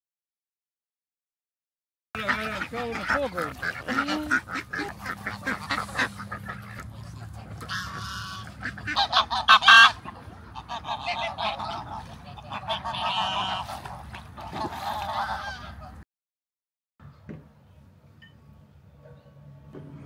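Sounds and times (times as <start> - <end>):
geese honking: 2.2 - 16.0.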